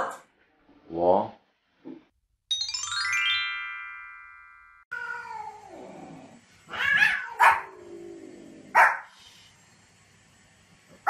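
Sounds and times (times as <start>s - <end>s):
chime of ringing notes: 2.5s - 4.9s
cat meowing: 4.9s - 5.7s, 6.7s - 7.7s
dog barking: 7.0s - 7.7s, 8.7s - 9.1s.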